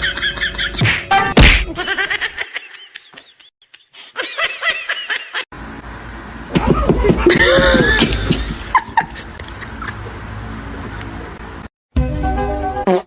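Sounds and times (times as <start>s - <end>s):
people laughing: 6.6s - 10.2s.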